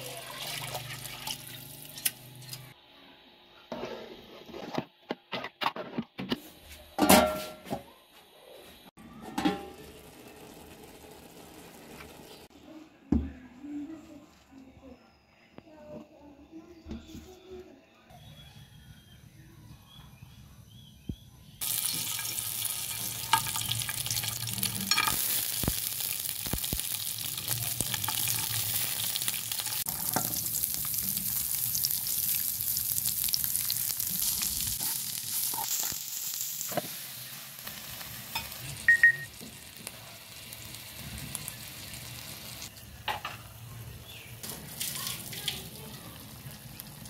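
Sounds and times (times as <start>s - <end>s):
oil sizzling in a frying pan: 9.5s - 12.5s, 21.6s - 47.0s.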